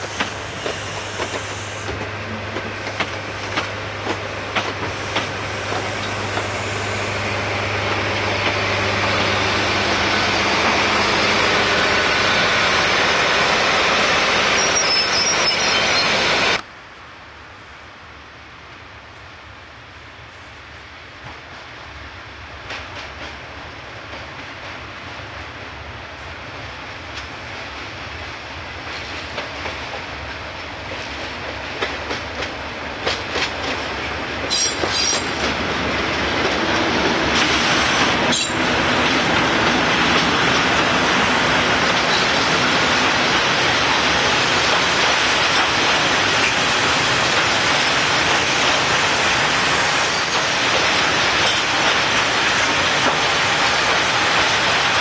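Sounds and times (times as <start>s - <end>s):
diesel locomotive passing: 0.0s - 16.7s, 19.4s - 55.0s
faint high wheel squeal: 14.5s - 16.2s, 49.7s - 51.0s
wheels clacking over rail joints: 30.9s - 55.0s.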